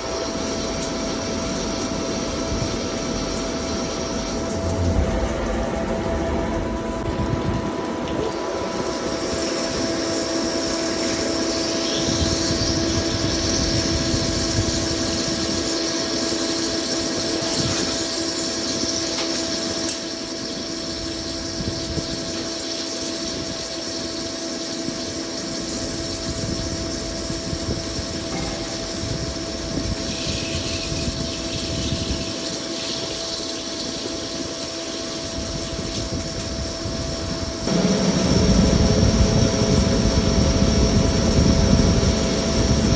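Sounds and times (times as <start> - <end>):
lathe machine hum with whine: 0.0 - 42.9.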